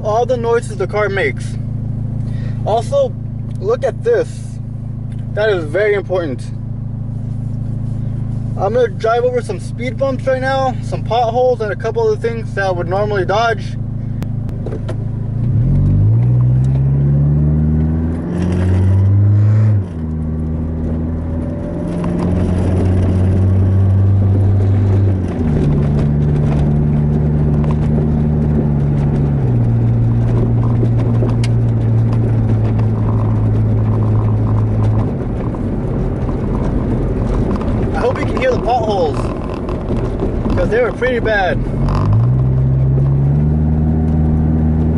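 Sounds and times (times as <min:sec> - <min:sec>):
car engine humming: 0:00.0 - 0:44.9
suspension knocks: 0:17.8 - 0:44.9.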